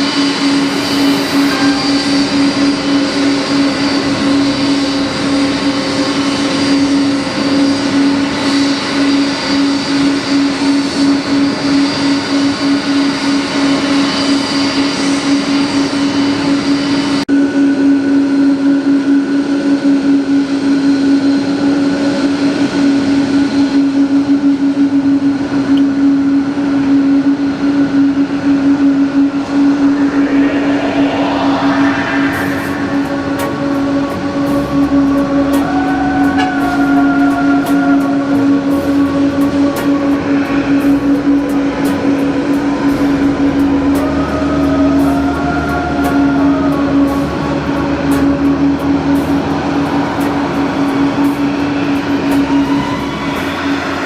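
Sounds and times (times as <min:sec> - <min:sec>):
machine drone with hum: 0:00.0 - 0:54.0
high hiss: 0:29.2 - 0:41.4.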